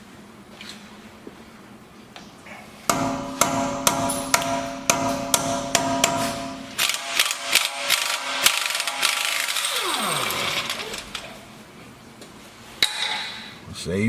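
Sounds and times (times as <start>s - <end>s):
power wrench clicking and rattling: 6.2s - 11.5s
power tool winding down: 6.8s - 11.4s.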